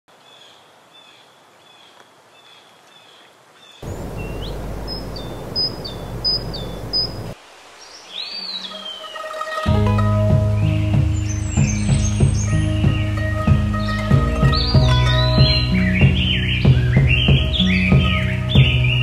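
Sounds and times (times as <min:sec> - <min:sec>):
bird chirping: 0:00.2 - 0:09.7, 0:10.5 - 0:19.0
bird whistling: 0:03.8 - 0:07.4, 0:08.2 - 0:09.6
falling whistled bird call: 0:03.8 - 0:07.4
low rumble of noise: 0:03.8 - 0:07.4.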